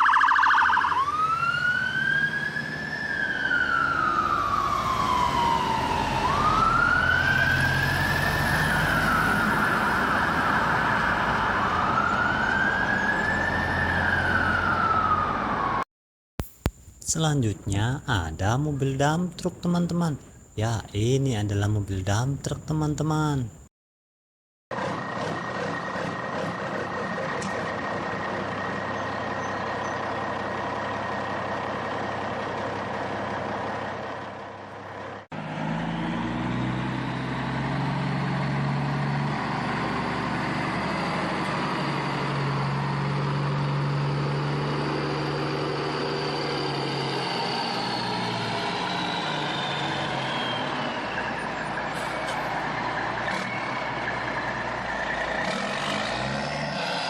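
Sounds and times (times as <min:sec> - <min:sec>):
high engine whine: 0:24.8 - 0:57.0
truck engine running: 0:24.8 - 0:57.0.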